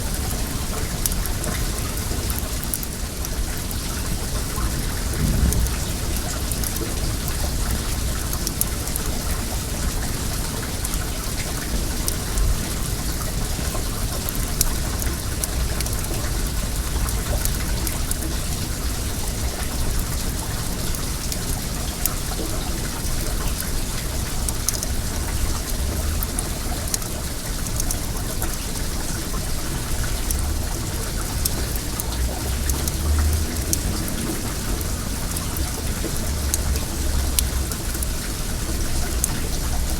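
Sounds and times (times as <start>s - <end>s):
flowing water rushing: 0.0s - 39.9s
campfire crackling and popping: 0.1s - 39.9s
low rumble: 4.9s - 7.2s.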